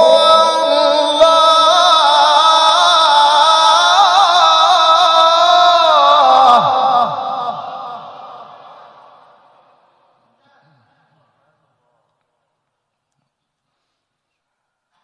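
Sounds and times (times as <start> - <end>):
man reciting in melismatic chant: 0.0 - 9.5.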